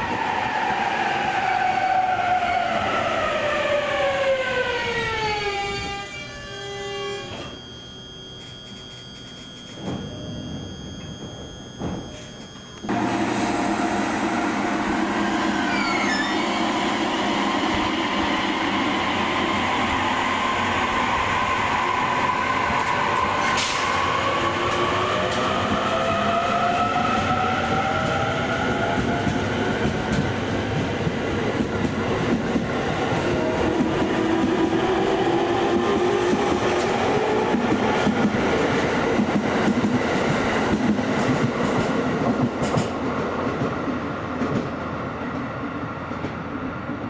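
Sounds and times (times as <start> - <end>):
whining tones rising in pitch: 0.2 - 29.7
train rolling noise: 8.2 - 47.0.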